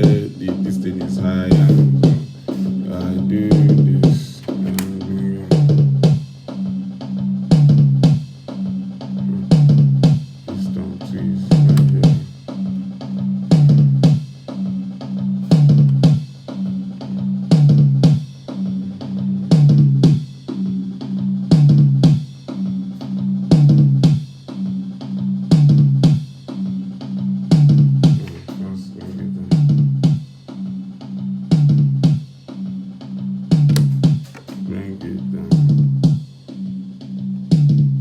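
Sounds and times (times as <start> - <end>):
bass guitar groove: 0.0 - 6.2, 9.1 - 20.8, 33.5 - 36.2
drum kit playing: 0.0 - 6.8, 7.5 - 24.8, 25.5 - 30.7, 33.5 - 36.6.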